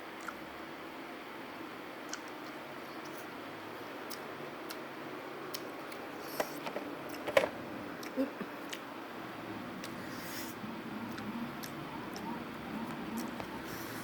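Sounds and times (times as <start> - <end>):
chewing clicks: 2.1 - 3.2.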